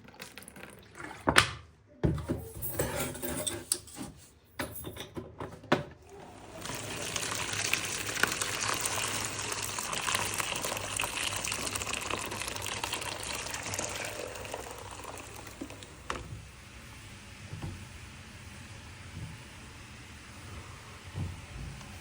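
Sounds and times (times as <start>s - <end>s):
tap water running into container: 6.0s - 22.0s.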